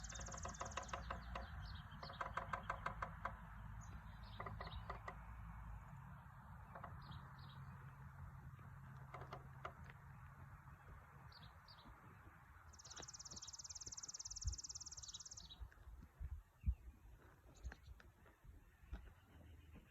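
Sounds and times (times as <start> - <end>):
woodpecker knocking on wood: 0.0 - 5.7, 6.4 - 10.4
small birds chirping: 0.0 - 19.9.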